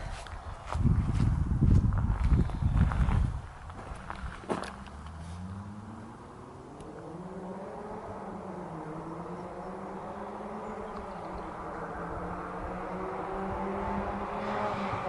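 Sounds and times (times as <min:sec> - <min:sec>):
car accelerating: 0:03.9 - 0:15.0.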